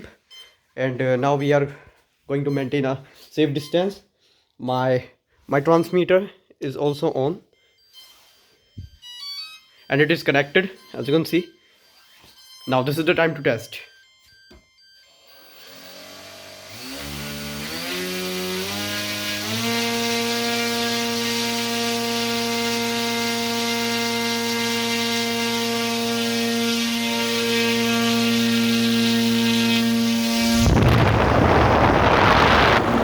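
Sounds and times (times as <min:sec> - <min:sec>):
electric motor whine: 0:15.2 - 0:33.0.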